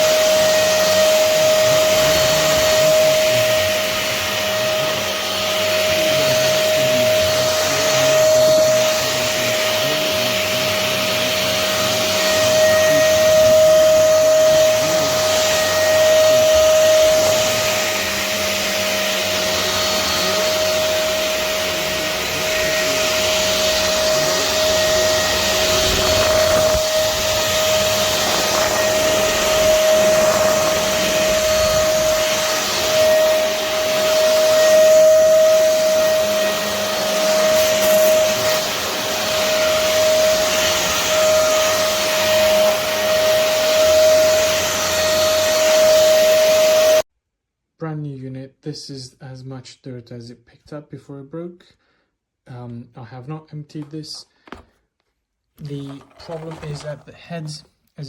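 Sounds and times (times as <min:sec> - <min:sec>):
vacuum cleaner running: 0:00.0 - 0:47.1, 0:55.6 - 0:57.2.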